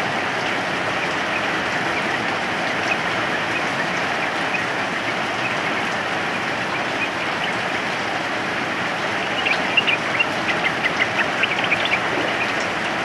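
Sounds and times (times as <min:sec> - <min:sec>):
rain hiss: 0:00.0 - 0:13.0
bird chirping: 0:09.2 - 0:13.0.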